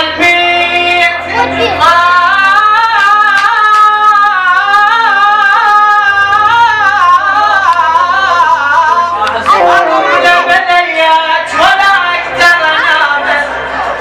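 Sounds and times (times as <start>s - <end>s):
man singing melismatic line: 5.0s - 12.9s.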